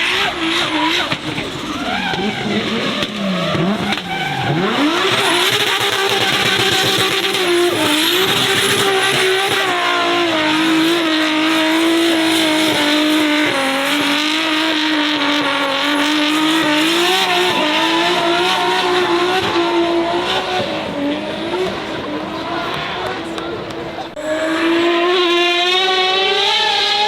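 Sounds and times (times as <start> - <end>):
car engine at high revs: 0.0 - 27.0
tyre squeal: 0.1 - 10.0.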